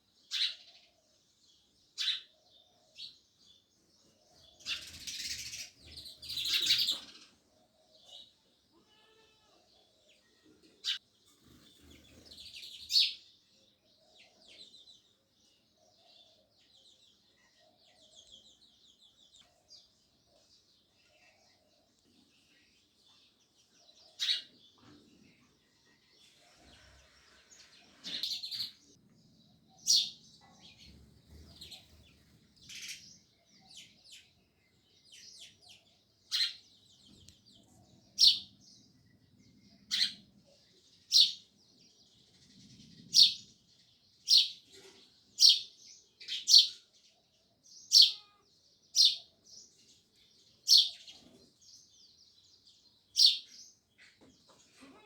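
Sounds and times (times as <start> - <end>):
sparrow chirps: 0.0 - 54.7
soft bird twittering: 27.3 - 41.5.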